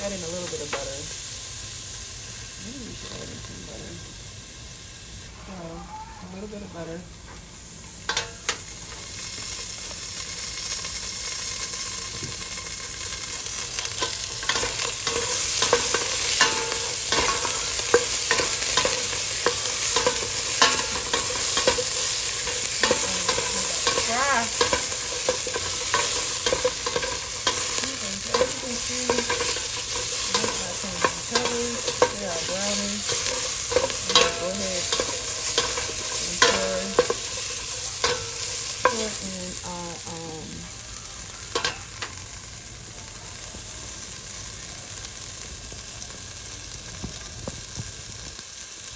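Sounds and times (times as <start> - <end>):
onion sizzling in butter: 0.0 - 48.9
utensil scraping and knocking pot: 13.9 - 39.6.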